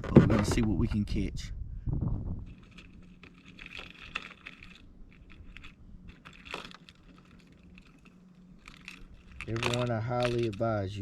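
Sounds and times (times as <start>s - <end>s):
low steady hum: 0.0s - 11.0s
light rattles of small items: 2.4s - 11.0s.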